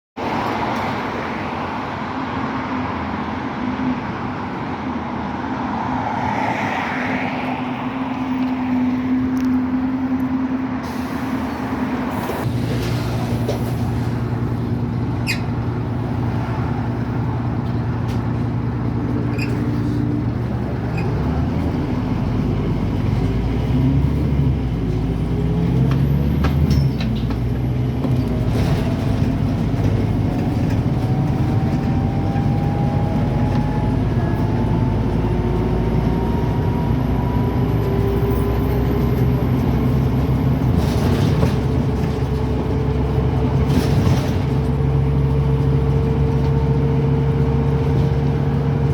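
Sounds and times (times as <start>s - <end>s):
bus diesel engine: 0.2s - 48.9s.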